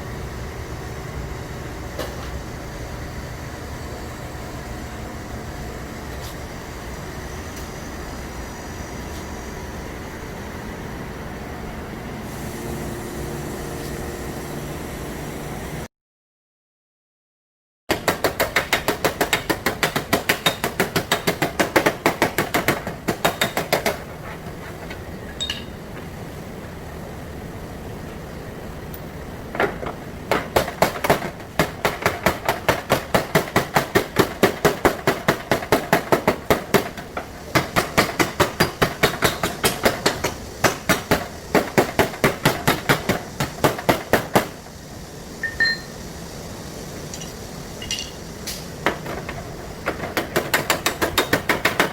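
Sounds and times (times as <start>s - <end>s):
hammer on sheet metal: 37.5s - 44.5s.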